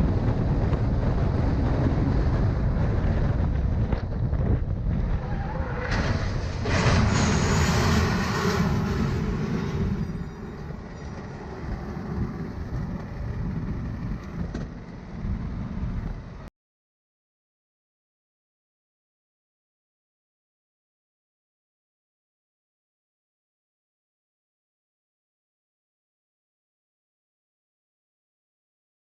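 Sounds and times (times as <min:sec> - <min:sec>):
road and engine rumble: 0:00.0 - 0:16.5.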